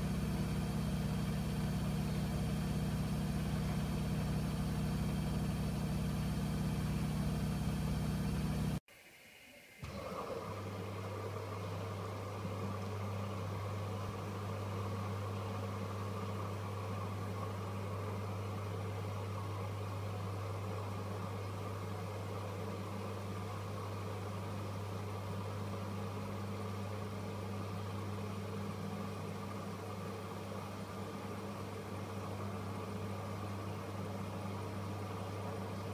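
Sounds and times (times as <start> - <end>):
washing machine humming: 0.0 - 8.8, 9.8 - 35.9.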